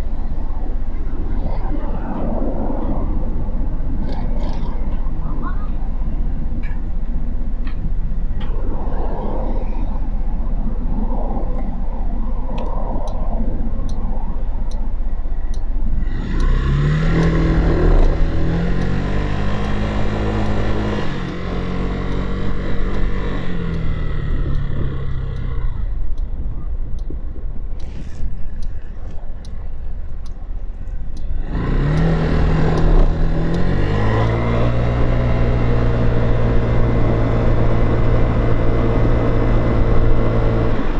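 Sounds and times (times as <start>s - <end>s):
motorcycle accelerating through gears: 15.9s - 26.2s, 31.0s - 40.9s.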